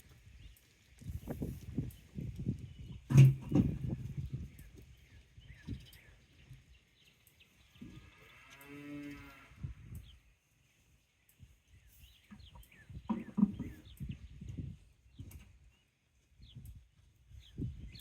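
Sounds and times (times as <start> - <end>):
cow mooing: 8.1 - 9.6.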